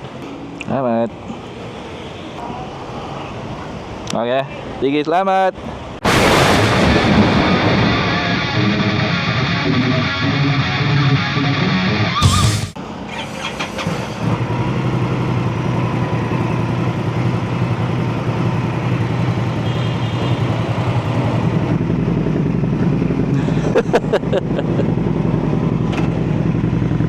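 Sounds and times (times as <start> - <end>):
motorcycle engine running: 12.2 - 12.8, 14.3 - 23.4, 24.8 - 27.0.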